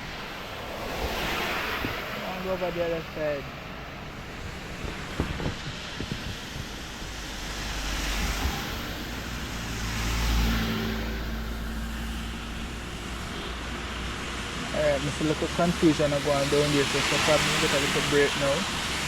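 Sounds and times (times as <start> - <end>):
car driving past: 6.4 - 19.0.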